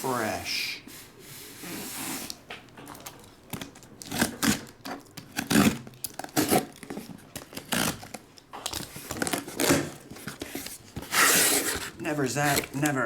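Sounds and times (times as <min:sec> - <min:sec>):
packaging ripping and scraping: 0:02.9 - 0:13.0.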